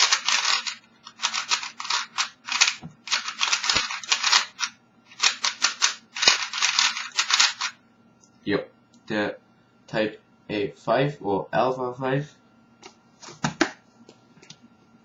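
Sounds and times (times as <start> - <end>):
speed cube clacking: 0.0 - 7.8.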